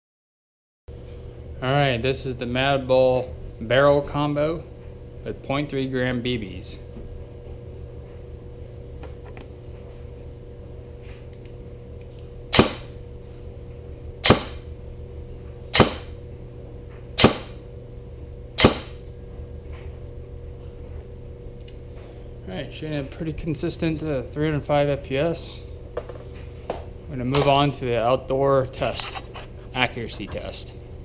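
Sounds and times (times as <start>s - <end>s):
steady low hum: 0.9s - 31.0s
airsoft rifle shots: 12.5s - 13.0s, 14.2s - 14.6s, 15.8s - 16.2s, 17.2s - 17.6s, 18.6s - 19.0s.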